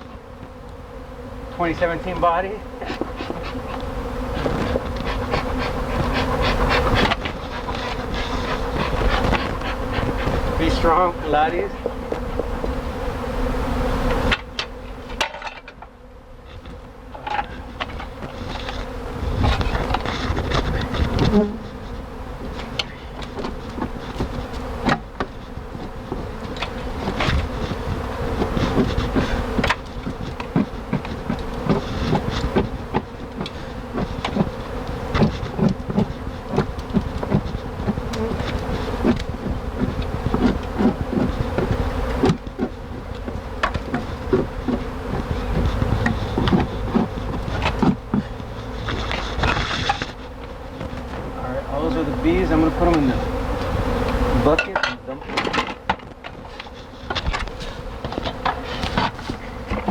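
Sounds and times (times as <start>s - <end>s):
bees buzzing: 0.0s - 59.9s
handling knocks and bumps: 22.5s - 51.4s.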